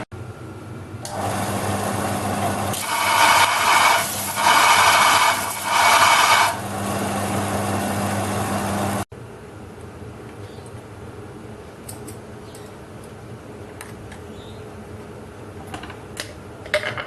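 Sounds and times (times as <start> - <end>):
electric power tool running: 1.0 - 9.0.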